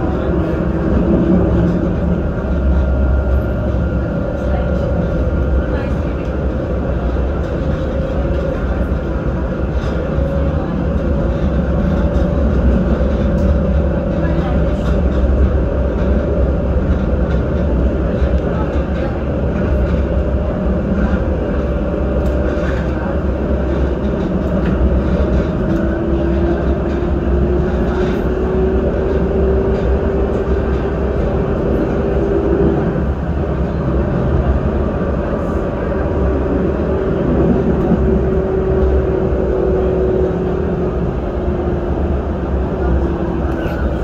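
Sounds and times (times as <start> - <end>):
train low rumble: 0.0 - 44.0.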